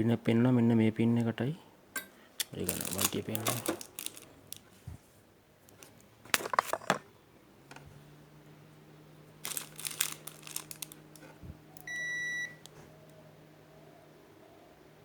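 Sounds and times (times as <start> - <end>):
multimeter continuity beep: 11.8 - 12.6.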